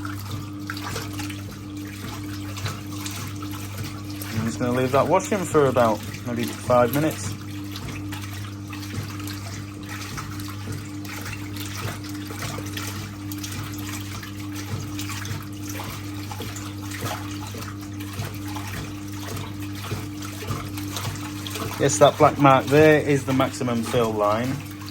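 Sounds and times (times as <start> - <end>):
washing machine motor humming: 0.0 - 24.9
water churning and splashing: 0.0 - 24.9.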